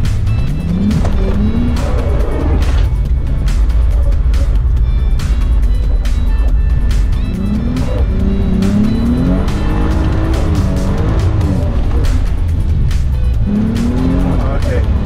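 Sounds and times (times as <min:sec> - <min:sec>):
background music: 0:00.0 - 0:15.0
car engine revving from inside cabin: 0:00.6 - 0:03.0, 0:07.2 - 0:12.4.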